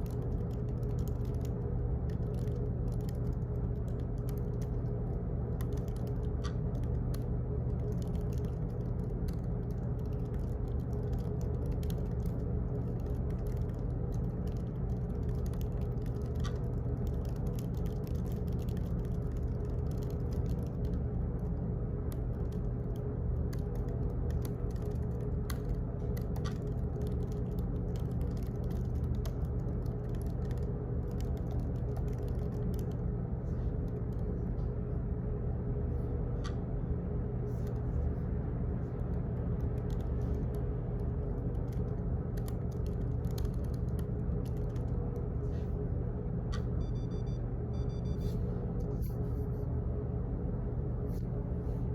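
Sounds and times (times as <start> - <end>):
faint clicks and ticks: 0.0 - 34.8, 38.8 - 45.3
steady low hum: 0.0 - 51.9.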